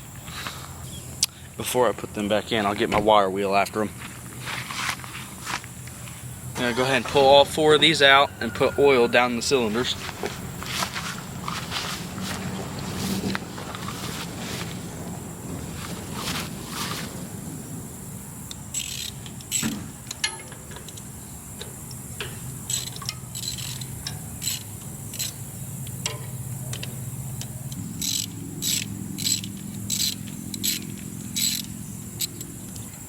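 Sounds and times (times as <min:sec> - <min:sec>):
high insect whine: 0:00.0 - 0:33.0
ratchet wrench clicking: 0:18.5 - 0:33.0.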